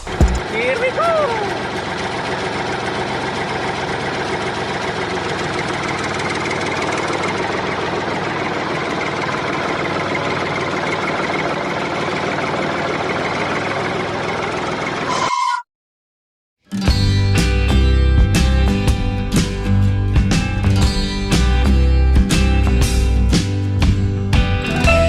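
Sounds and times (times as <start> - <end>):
small engine running: 0.0 - 15.2.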